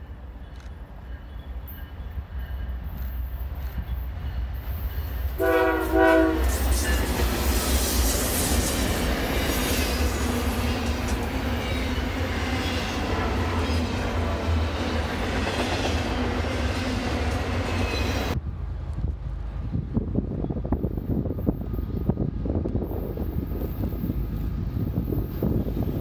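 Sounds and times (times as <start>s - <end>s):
diesel locomotive engine rumble: 0.0s - 26.0s
train wheels and cars rushing: 0.0s - 26.0s
locomotive air horn blasts: 5.4s - 6.9s.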